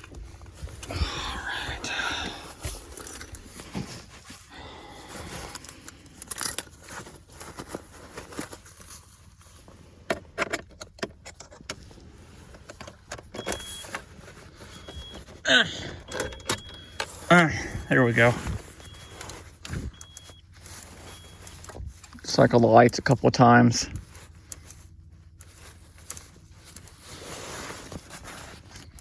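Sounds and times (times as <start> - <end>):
faint high electronic beeping: 16.0 - 21.6.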